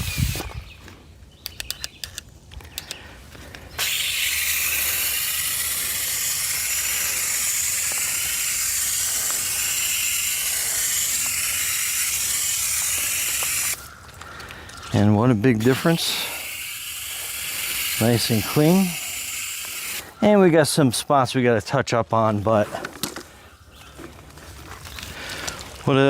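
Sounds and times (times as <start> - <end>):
hose spraying water on a wheel: 3.8 - 13.8, 15.6 - 20.1.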